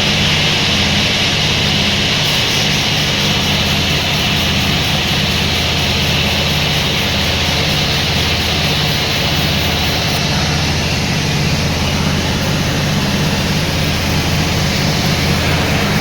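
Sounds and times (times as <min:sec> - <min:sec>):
sawmill machinery running: 0:00.0 - 0:16.0.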